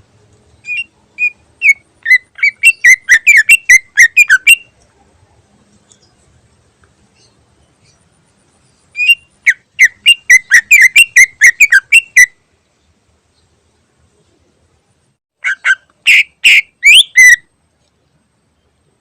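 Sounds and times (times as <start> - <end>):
bird whistled notes: 0.6 - 4.8, 8.9 - 12.4, 15.5 - 17.5.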